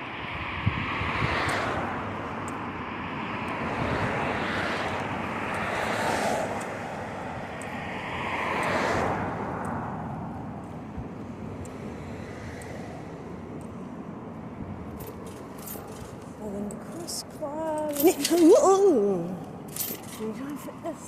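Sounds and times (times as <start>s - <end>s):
vehicles passing: 0.0s - 21.0s
wind on microphone: 0.3s - 2.2s, 3.6s - 5.4s.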